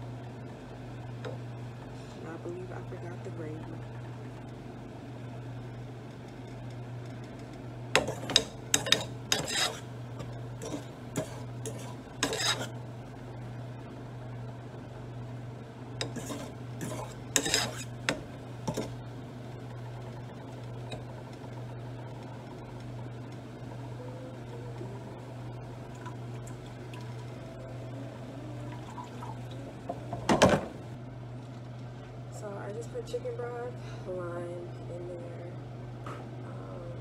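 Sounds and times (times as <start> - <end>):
steady low hum: 0.0 - 37.0
utensil scraping cooking pot: 8.0 - 12.8, 16.0 - 19.0.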